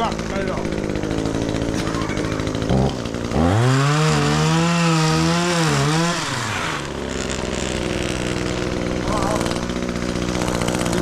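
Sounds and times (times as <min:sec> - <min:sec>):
chainsaw revving and cutting wood: 0:00.0 - 0:11.0.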